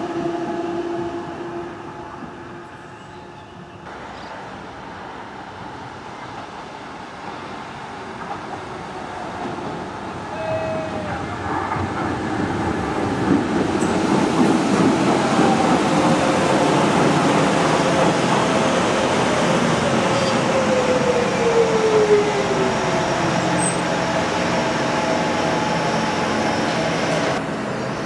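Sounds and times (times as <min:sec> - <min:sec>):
train running on rails: 0:00.0 - 0:28.0.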